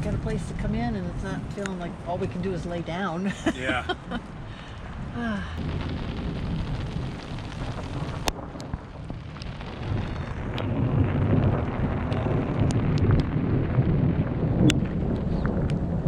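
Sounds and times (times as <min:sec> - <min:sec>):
low rumble: 0:00.0 - 0:16.0
rain striking a tent: 0:03.3 - 0:16.0.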